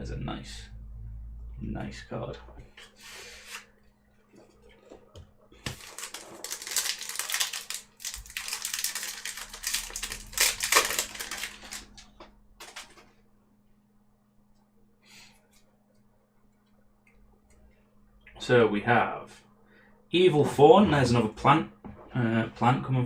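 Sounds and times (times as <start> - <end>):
foil pack crinkling and tearing: 5.6 - 13.0.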